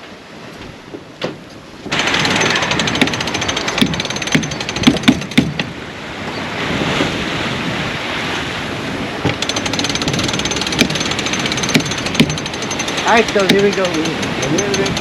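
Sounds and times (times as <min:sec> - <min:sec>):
wind and sea rushing: 0:00.0 - 0:15.0
wind buffeting microphone: 0:00.0 - 0:15.0
sharp knocks: 0:01.2 - 0:05.7, 0:09.2 - 0:15.0
fast clicking clatter: 0:01.9 - 0:05.6, 0:09.3 - 0:15.0.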